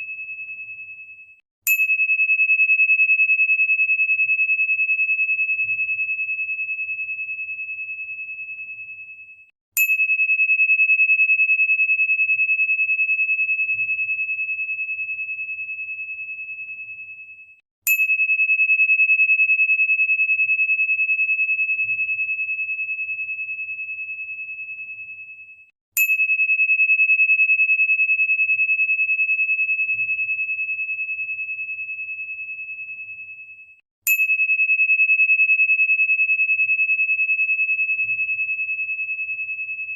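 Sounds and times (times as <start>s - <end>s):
high ringing tone: 0.0s - 2.1s.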